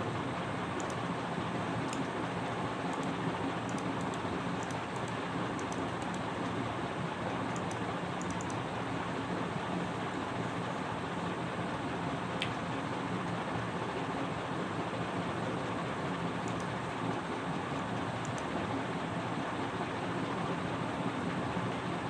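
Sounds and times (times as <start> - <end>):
faint high ticks: 0.8 - 1.0, 2.9 - 6.2, 7.5 - 8.6, 16.4 - 16.7, 18.2 - 18.5.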